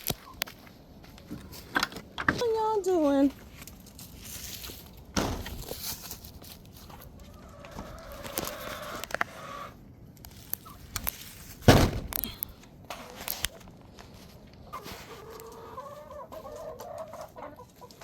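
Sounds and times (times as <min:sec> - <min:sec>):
loud knock: 0:05.2 - 0:05.6, 0:11.7 - 0:12.1
hens clucking: 0:06.6 - 0:09.9, 0:12.9 - 0:18.0.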